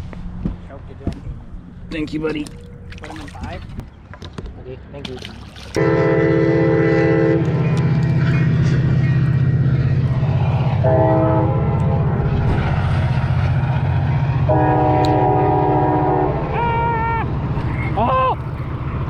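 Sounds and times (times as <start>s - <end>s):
train air horn chord: 5.8s - 7.8s, 10.8s - 12.1s, 14.5s - 16.4s
train locomotive passing: 5.8s - 19.0s.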